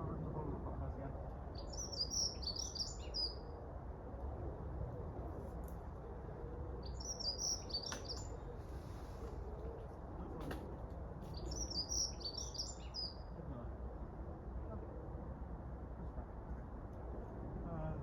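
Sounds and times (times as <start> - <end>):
songbird chirping: 1.5 - 3.5, 6.8 - 8.8, 11.2 - 13.4.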